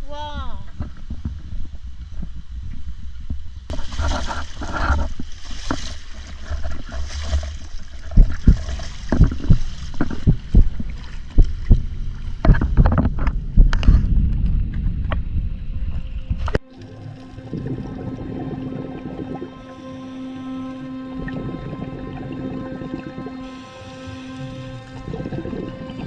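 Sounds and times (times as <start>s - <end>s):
knocks and thumps: 3.3s - 14.4s
water sloshing: 3.7s - 14.0s, 16.2s - 26.0s
wind buffeting microphone: 8.0s - 16.6s.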